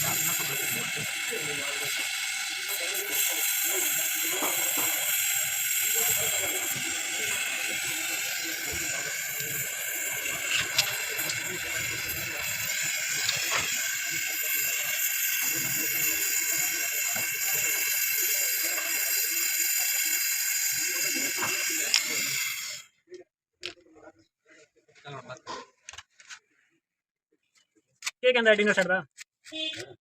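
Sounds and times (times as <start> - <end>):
welding torch flame hissing: 0.0 - 22.9.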